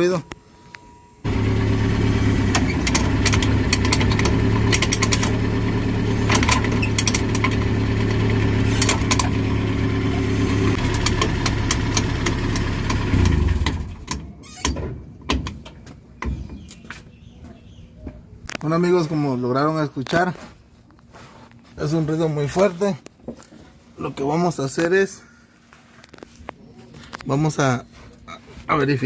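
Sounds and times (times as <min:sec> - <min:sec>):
engine running: 0:01.1 - 0:14.3
clicks and rattles of driveshaft: 0:02.3 - 0:09.7, 0:10.6 - 0:16.9.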